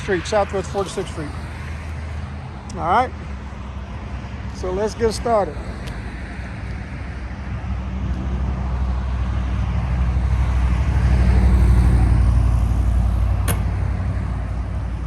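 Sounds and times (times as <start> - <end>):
vehicle driving past: 10.0 - 14.3
sharp click: 13.4 - 13.8.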